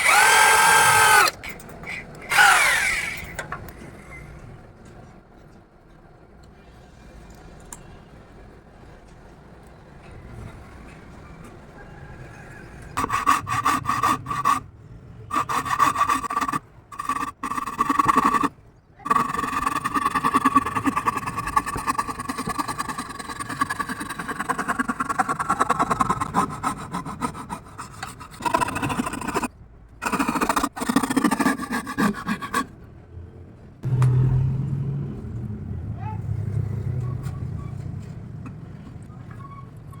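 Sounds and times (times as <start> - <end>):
scroll saw cutting wood: 0.0 - 3.4, 12.9 - 14.6, 15.3 - 32.8.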